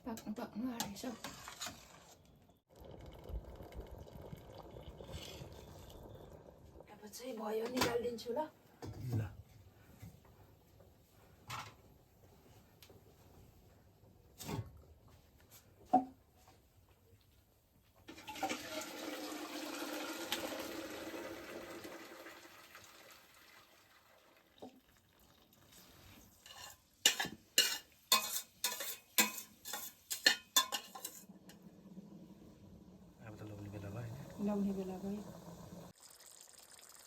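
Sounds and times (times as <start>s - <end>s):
metal clanking against pot: 26.4s - 31.7s.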